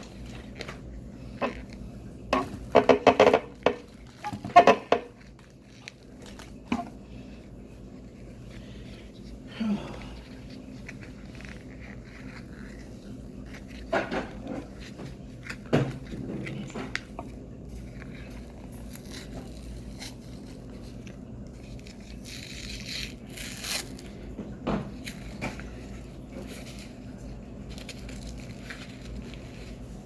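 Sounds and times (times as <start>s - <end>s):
crinkling: 0.0s - 30.0s
low steady hum: 0.0s - 30.0s
person biting and chewing: 10.0s - 24.2s.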